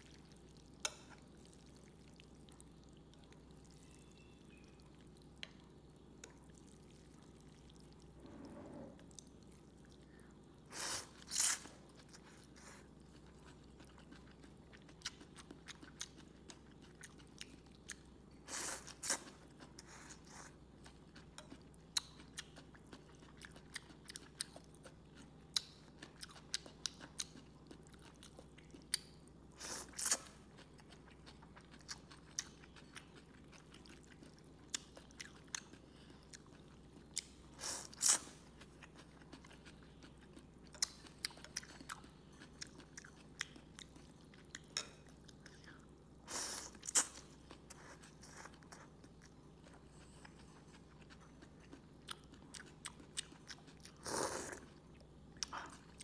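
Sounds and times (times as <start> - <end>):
person chewing and crunching: 11.2 - 18.0, 18.9 - 29.0, 29.9 - 45.9, 46.6 - 56.0.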